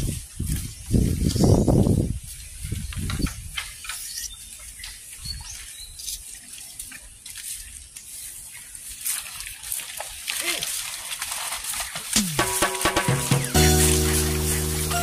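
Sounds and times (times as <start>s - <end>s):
dry leaf midribs rustling: 3.6s - 15.0s
low thumps: 12.2s - 15.0s.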